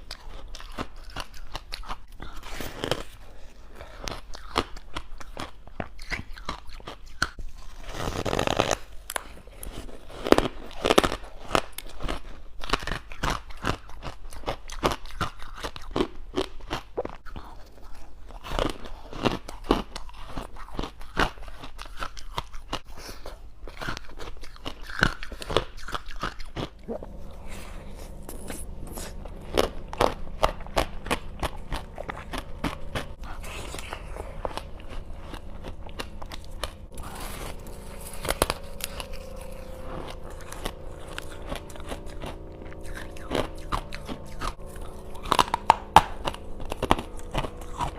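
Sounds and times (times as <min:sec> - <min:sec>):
crunching and chewing ice: 0:00.0 - 0:47.9
low hum: 0:26.7 - 0:47.9.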